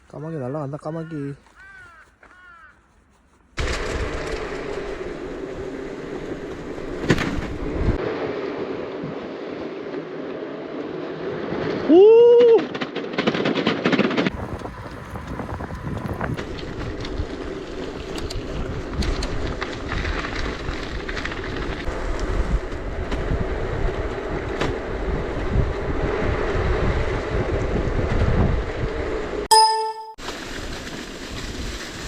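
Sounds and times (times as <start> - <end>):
bike tyres rolling on gravel: 1.4 - 2.8, 3.6 - 8.1, 12.8 - 28.6, 30.2 - 32.0
wind buffeting microphone: 3.9 - 8.0, 14.3 - 21.0, 21.8 - 29.2.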